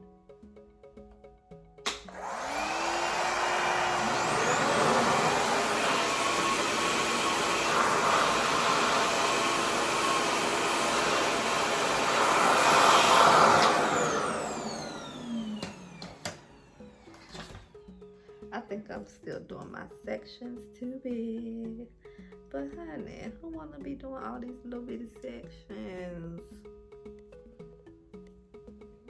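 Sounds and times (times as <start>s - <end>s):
hair dryer running: 1.9s - 17.9s.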